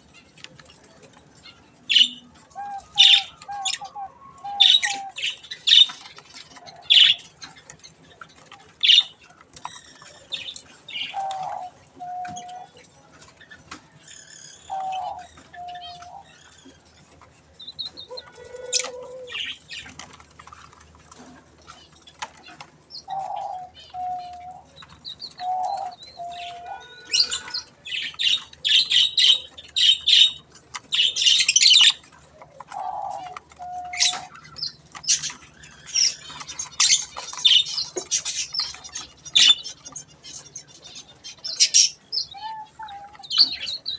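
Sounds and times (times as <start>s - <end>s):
budgies chattering: 0.0s - 43.9s.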